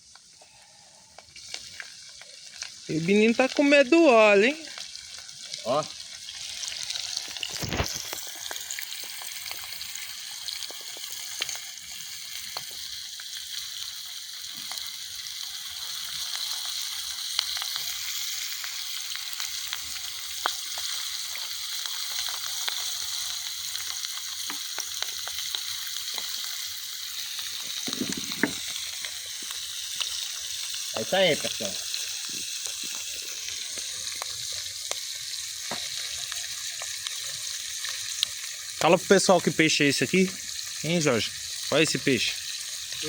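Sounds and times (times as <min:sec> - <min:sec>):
fish deep-frying in hot oil: 0:00.0 - 0:43.0.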